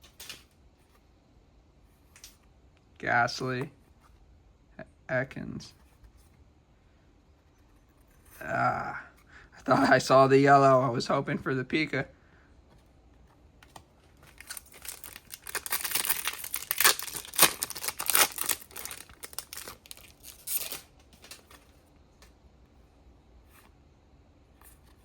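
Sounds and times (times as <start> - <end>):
wrapper tearing and crinkling: 14.2 - 21.6.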